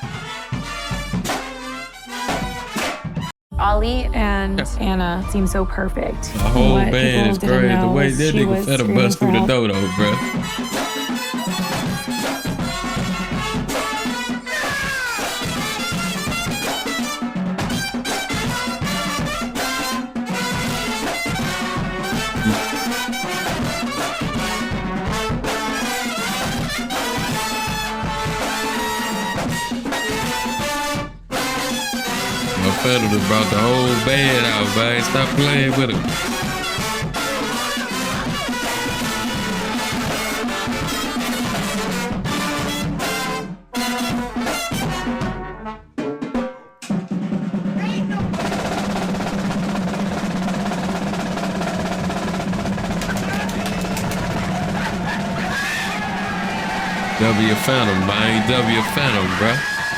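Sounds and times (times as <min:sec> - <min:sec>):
live band with brass and drums: 0:00.0 - 0:03.3, 0:06.3 - 0:59.9
snare drum roll: 0:46.9 - 0:55.4, 0:57.1 - 0:59.7.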